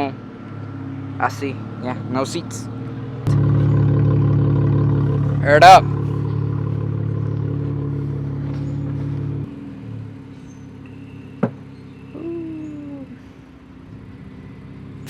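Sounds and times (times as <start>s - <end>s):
car engine running: 3.1s - 12.1s
short falling whine: 3.3s - 9.5s.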